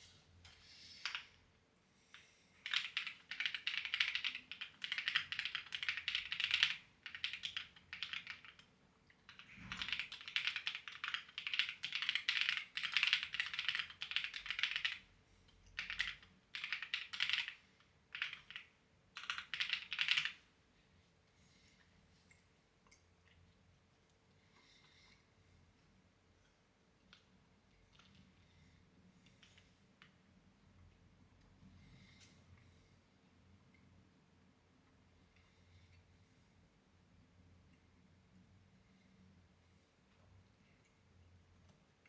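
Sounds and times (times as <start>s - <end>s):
typing on clacky keyboard: 2.6s - 8.7s, 9.3s - 15.0s, 15.7s - 20.4s.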